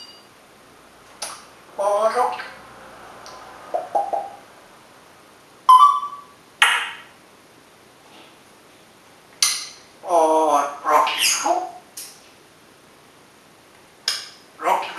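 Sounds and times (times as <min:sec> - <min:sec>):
parrot call: 0:05.7 - 0:07.1
parrot squawking: 0:05.7 - 0:07.1, 0:10.1 - 0:11.8.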